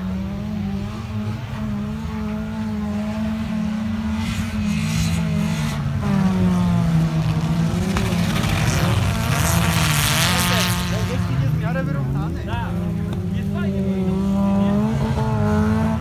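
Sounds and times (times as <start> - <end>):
race car engines revving: 0.0 - 16.0.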